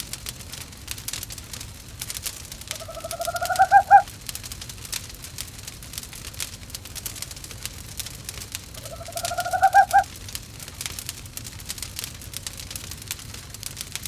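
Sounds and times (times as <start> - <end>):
wood fire crackling: 0.0 - 14.0
owl calling: 2.7 - 4.1, 8.8 - 10.1.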